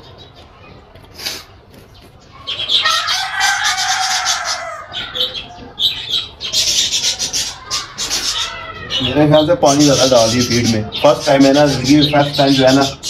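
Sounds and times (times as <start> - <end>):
loud harsh bird calls: 2.3 - 13.0.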